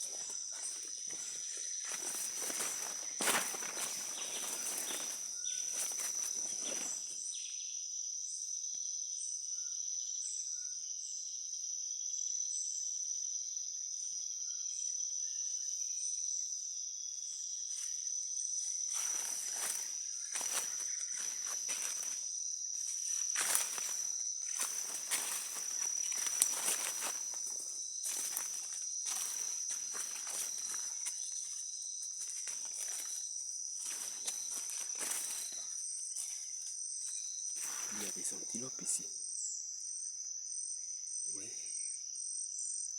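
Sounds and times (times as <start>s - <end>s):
footsteps crunching through leaves: 0.0s - 7.2s, 18.7s - 38.4s
high-pitched insect drone: 0.0s - 11.6s, 12.2s - 42.9s
insect chirping: 0.0s - 42.9s.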